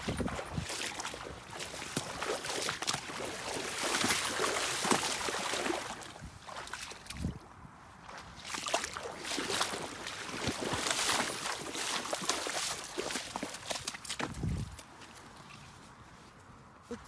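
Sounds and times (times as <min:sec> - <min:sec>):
water running and splashing: 0:00.0 - 0:06.8, 0:08.6 - 0:14.7.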